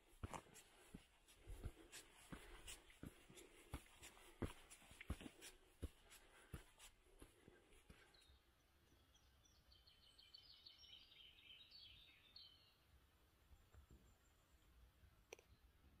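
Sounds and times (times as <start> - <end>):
footsteps on dry forest path: 0.0 - 8.2
birdsong chirps: 1.7 - 15.9.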